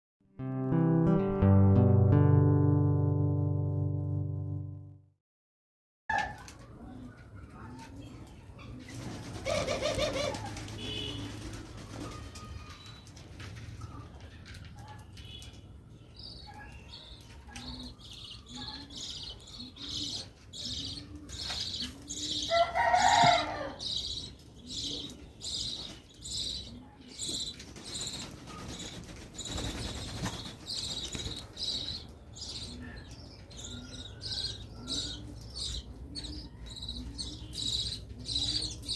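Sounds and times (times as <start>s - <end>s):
doves cooing: 8.6s - 12.5s, 18.6s - 38.9s.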